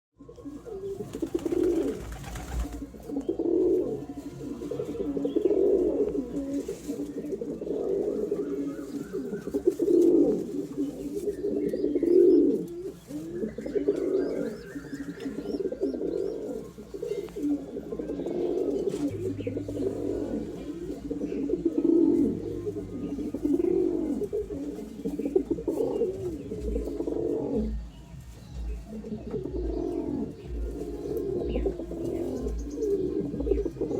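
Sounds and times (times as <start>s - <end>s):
pigeons cooing: 0.2s - 33.9s.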